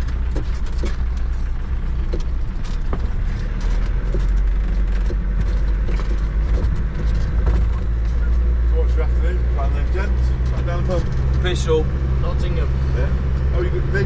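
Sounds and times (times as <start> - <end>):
light knocks and rattles: 0.0 - 8.7
vehicle engine rumbling: 0.0 - 14.0.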